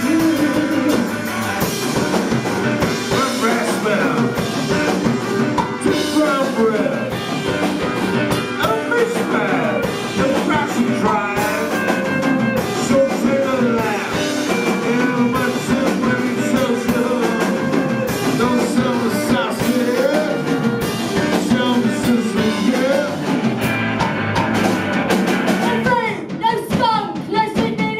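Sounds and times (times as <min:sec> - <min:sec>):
person singing: 0:00.0 - 0:01.7, 0:02.8 - 0:23.4
electric guitar: 0:00.0 - 0:26.5
drum kit: 0:00.0 - 0:27.9.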